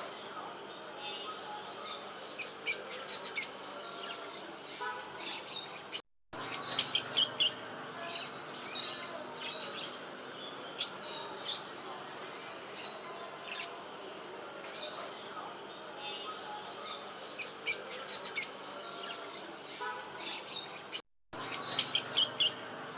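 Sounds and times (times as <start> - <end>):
pet birds chirping: 1.8 - 11.7, 16.0 - 22.9.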